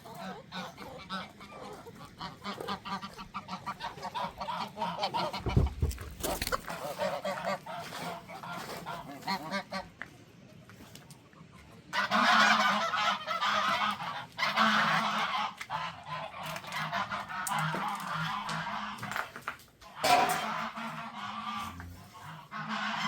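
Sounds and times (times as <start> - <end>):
farm birds calling: 0.0 - 23.0
low thump: 5.4 - 6.2.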